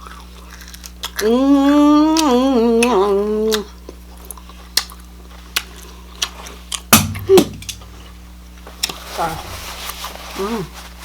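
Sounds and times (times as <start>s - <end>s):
person humming mmm: 1.2s - 3.8s, 9.2s - 9.6s, 10.4s - 10.8s
quiet chewing: 8.0s - 9.1s.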